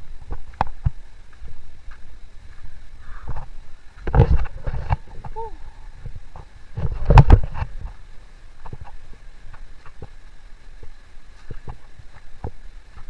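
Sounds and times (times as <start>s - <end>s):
footsteps on a trail: 0.0s - 13.0s.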